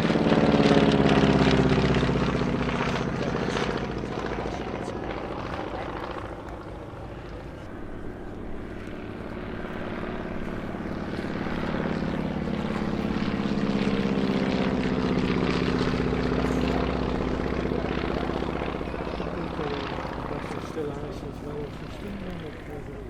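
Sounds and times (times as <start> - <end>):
propeller aircraft flying by: 0.0 - 23.0.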